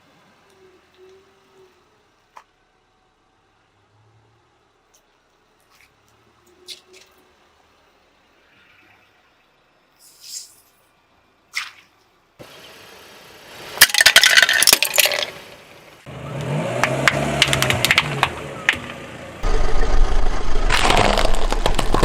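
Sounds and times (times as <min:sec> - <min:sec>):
car engine running: 0:12.4 - 0:22.0
tyre crushing brittle objects: 0:16.8 - 0:18.3, 0:20.5 - 0:22.0.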